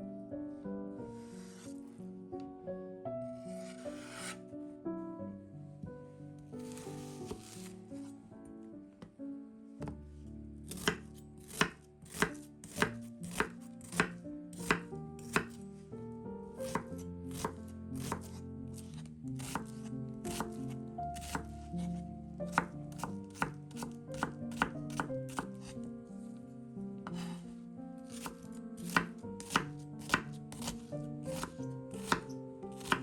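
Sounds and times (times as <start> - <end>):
background music: 0.0 - 33.0
knife chopping on cutting board: 3.7 - 4.4, 6.6 - 7.7, 10.7 - 15.6, 16.6 - 18.4, 19.4 - 20.6, 21.2 - 21.9, 22.5 - 25.7, 27.0 - 27.4, 28.1 - 33.0.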